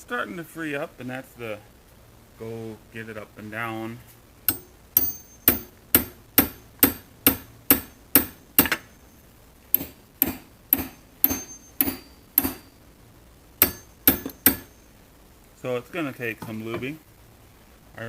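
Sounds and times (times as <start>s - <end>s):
short metallic ring: 4.5s - 5.8s, 10.8s - 12.8s, 13.6s - 14.9s
hammer blows on metal: 4.5s - 9.0s, 9.7s - 12.8s, 13.6s - 14.8s.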